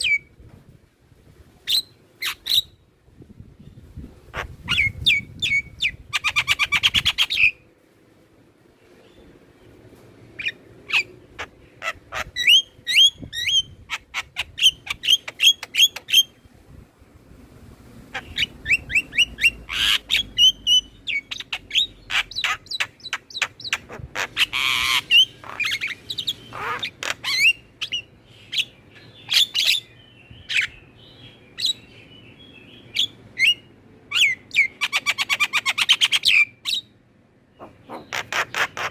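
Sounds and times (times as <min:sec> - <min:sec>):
harsh rasping squawks: 0:37.6 - 0:38.9.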